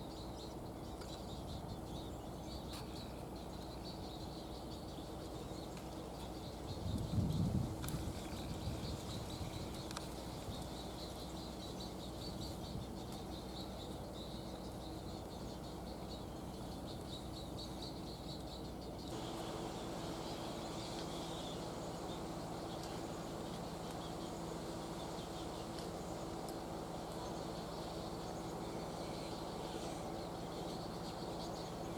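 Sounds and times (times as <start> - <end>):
low steady hum: 0.0 - 31.9
herons calling with high ticks: 9.2 - 31.9.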